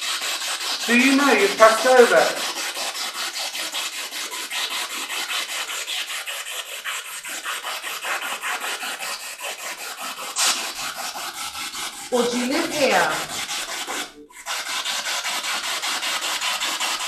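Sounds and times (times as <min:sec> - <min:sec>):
choppy radio static: 0:00.9 - 0:02.4, 0:12.2 - 0:13.3.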